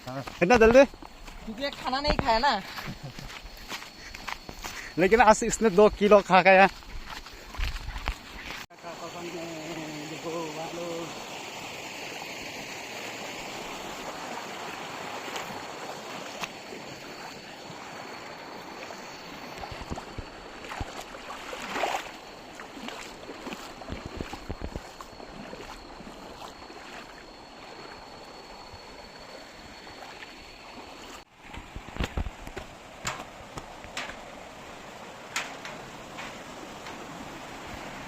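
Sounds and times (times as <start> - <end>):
stream water flowing: 0.0 - 38.0.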